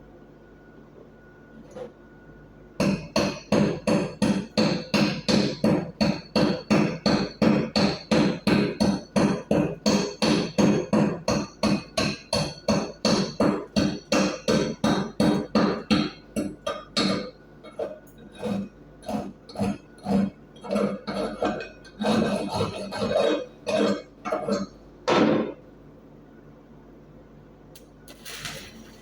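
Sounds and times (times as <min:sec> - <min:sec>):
chipping hammer striking steel: 0:02.8 - 0:17.3.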